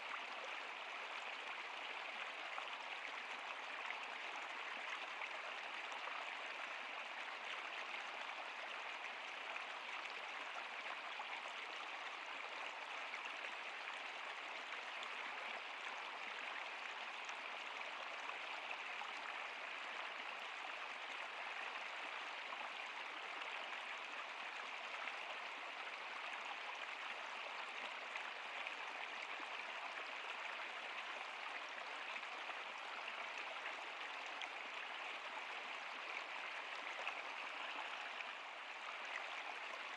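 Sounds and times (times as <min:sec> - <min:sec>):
stream water running over rocks: 0:00.0 - 0:39.9.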